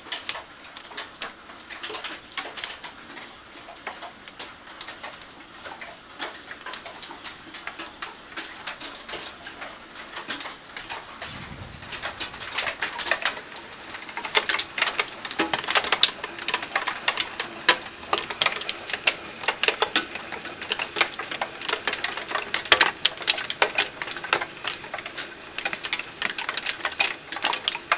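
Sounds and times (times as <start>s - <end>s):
hailstones striking hard surface: 10.8s - 27.9s.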